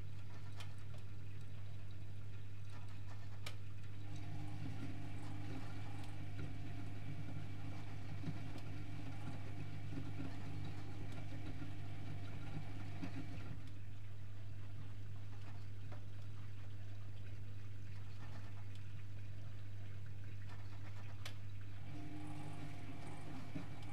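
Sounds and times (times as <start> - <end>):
washing machine motor humming: 3.9 - 14.0, 21.6 - 23.9.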